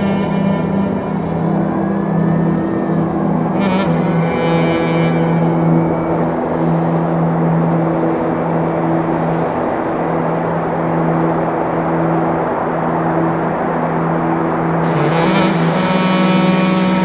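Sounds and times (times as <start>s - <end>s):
road and wind noise: 0.0s - 17.0s
vehicle engine humming: 14.8s - 17.0s.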